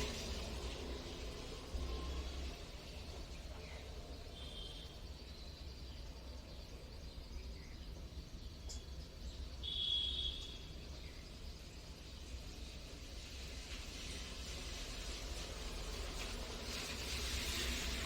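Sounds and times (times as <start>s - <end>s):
low outdoor rumble: 0.0s - 9.5s.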